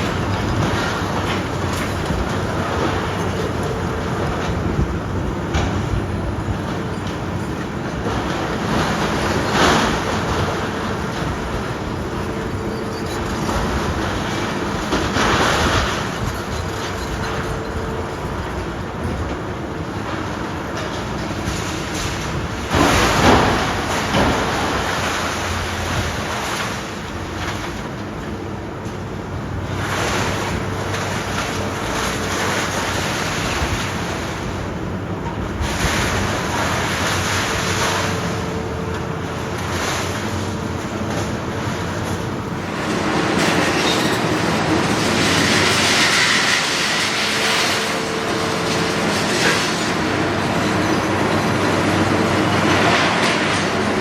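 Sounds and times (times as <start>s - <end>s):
excavator engine running: 0.0s - 54.0s
clatter and crunch of concrete: 35.2s - 54.0s.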